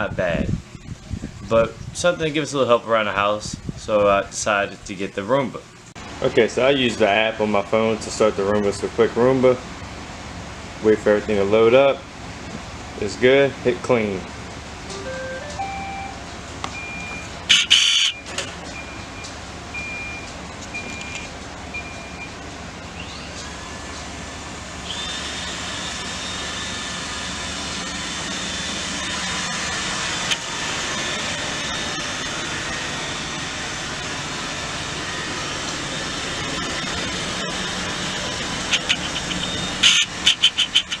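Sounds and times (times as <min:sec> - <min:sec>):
robot vacuum start-up chime: 0:15.0 - 0:16.2
vacuum motor whine: 0:24.8 - 0:38.7.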